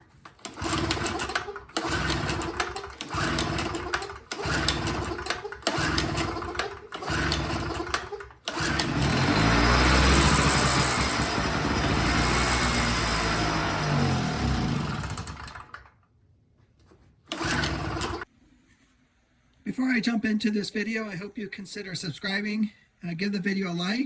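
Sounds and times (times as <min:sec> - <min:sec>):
small gasoline engines running: 0:00.4 - 0:15.9, 0:17.3 - 0:18.2
deeper engine running: 0:08.8 - 0:15.2.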